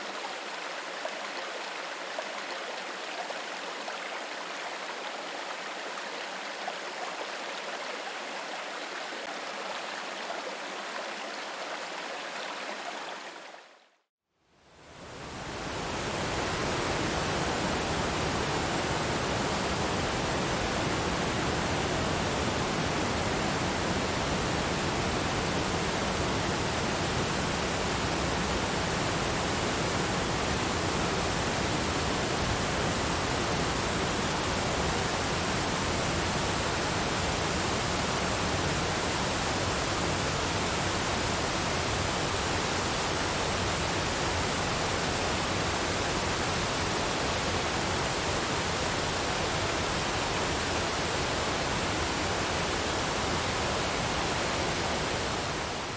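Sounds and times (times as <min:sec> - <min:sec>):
water rushing: 0:14.9 - 0:55.9.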